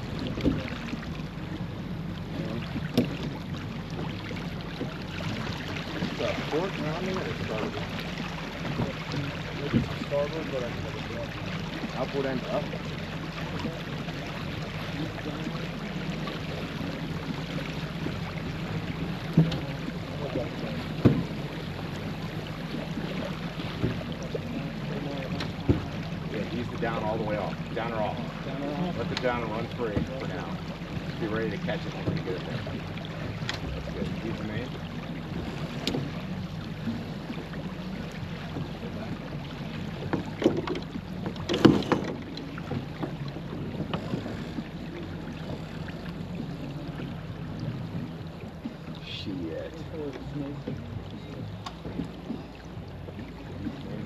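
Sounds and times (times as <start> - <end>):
low hum: 0.0 - 54.0
water rushing along hull: 0.0 - 54.0
wind: 0.0 - 54.0
sharp knocks from gear: 2.8 - 3.3, 40.1 - 43.2.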